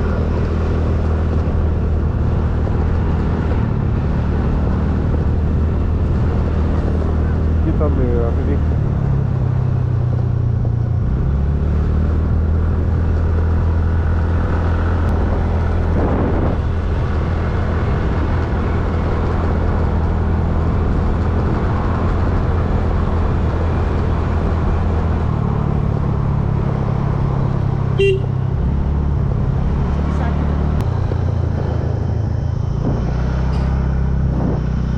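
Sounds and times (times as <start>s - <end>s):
motorcycle engine running: 0.0s - 34.9s
short horn toot: 28.0s - 28.4s.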